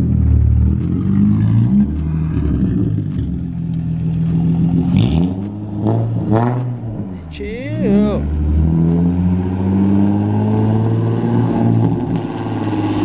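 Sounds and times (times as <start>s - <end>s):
car engine running at low revs: 0.0s - 13.0s.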